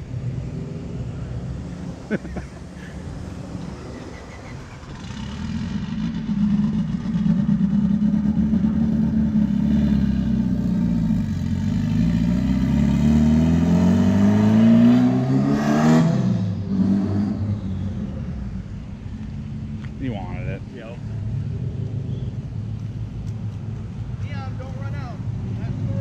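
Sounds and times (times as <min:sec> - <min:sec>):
car engine accelerating past: 0:00.0 - 0:18.9.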